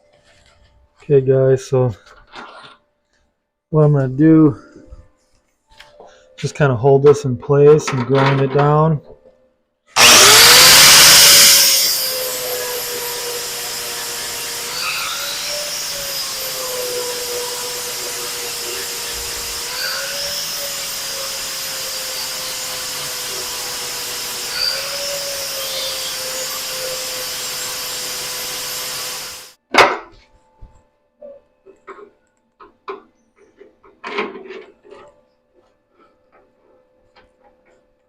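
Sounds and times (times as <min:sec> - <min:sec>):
grinder grinding metal: 0:10.0 - 0:29.6.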